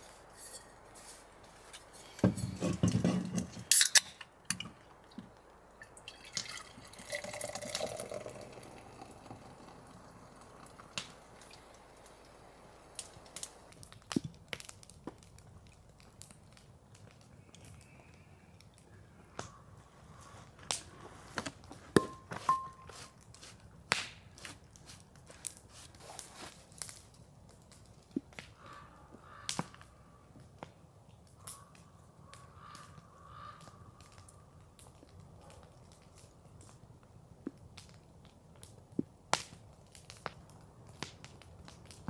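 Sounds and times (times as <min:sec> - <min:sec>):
water dripping: 0:04.2 - 0:13.9.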